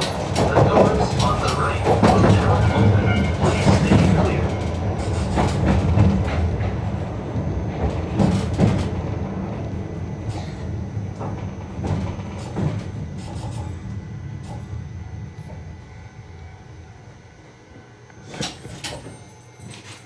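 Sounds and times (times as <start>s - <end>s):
wheels clicking over rail joints: 0.0s - 6.8s
train running on track: 0.0s - 20.0s.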